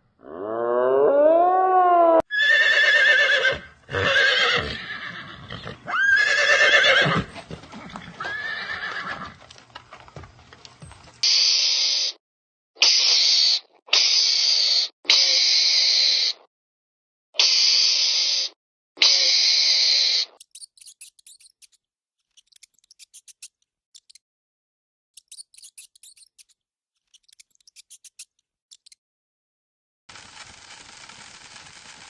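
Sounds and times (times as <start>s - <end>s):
horse whinnying: 0.2s - 9.4s.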